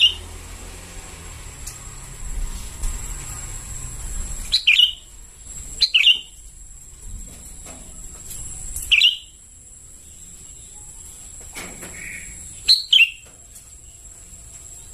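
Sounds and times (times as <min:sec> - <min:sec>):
bird calling: 0:00.0 - 0:00.4, 0:04.5 - 0:05.1, 0:05.7 - 0:06.5, 0:08.7 - 0:09.4, 0:10.0 - 0:13.4.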